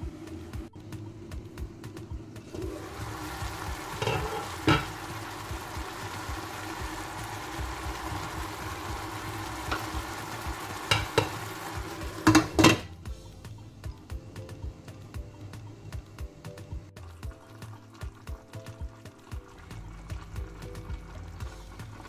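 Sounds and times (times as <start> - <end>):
chicken wings sizzling in a pot: 0.0 - 22.0
glass lid clanking onto pot: 3.9 - 5.0, 10.9 - 11.4, 12.2 - 12.9.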